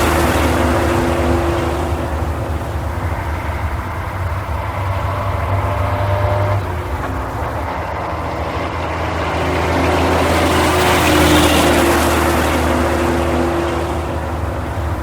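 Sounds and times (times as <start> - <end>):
racing truck engine running: 0.0 - 15.0
rushing noise: 0.0 - 15.0.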